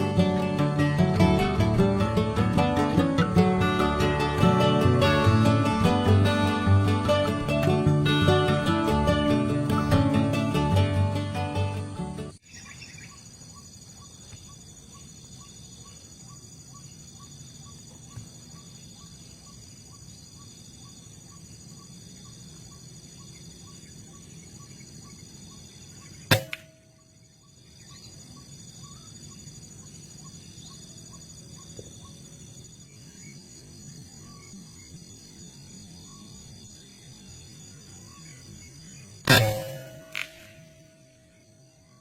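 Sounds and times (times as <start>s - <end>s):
plucked-string music: 0.0s - 12.4s, 26.3s - 26.7s, 39.3s - 41.4s
high insect calls: 0.0s - 42.0s.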